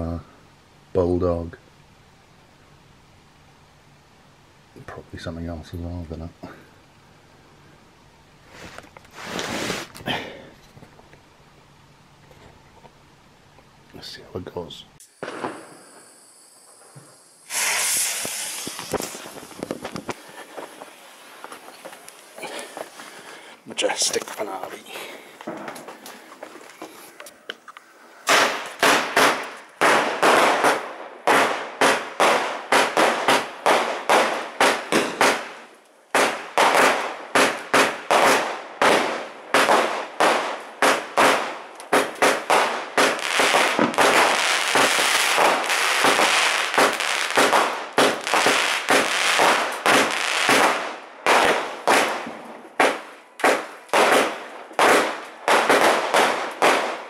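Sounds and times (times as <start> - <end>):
firework cake bangs: 28.3 - 57.0.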